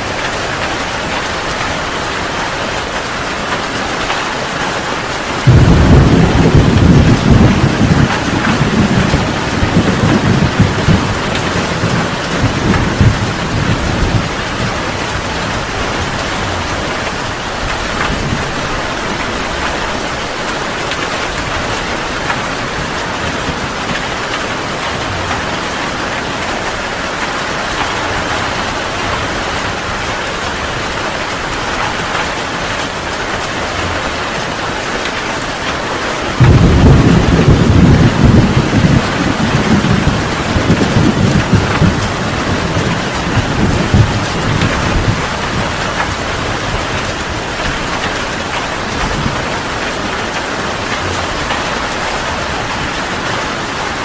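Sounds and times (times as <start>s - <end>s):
heavy rain: 0.0s - 54.0s
thunder rumbling: 5.0s - 32.6s, 35.5s - 54.0s
loud peal of thunder: 5.4s - 14.8s, 36.4s - 45.8s.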